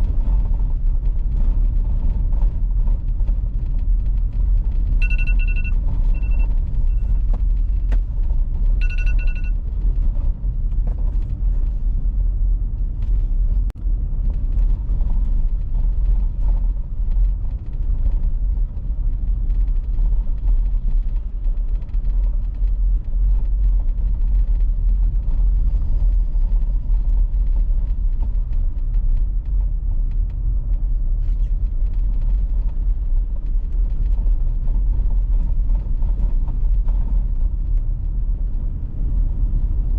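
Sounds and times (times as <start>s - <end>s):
car driving on icy road: 0.0s - 39.9s
short electronic beep: 5.0s - 7.8s, 8.8s - 9.6s.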